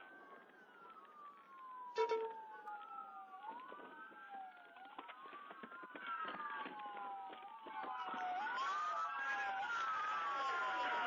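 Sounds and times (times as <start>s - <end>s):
police sirens wailing: 0.0s - 11.0s
short loud tone: 2.0s - 2.3s.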